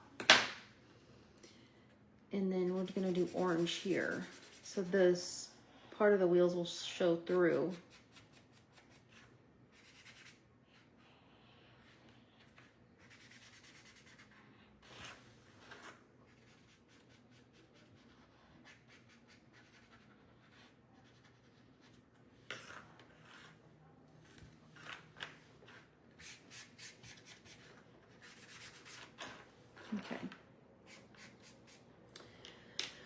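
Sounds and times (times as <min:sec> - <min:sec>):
marker scratching on plastic: 0:02.7 - 0:04.9, 0:07.7 - 0:10.9, 0:12.4 - 0:23.6, 0:24.2 - 0:29.4.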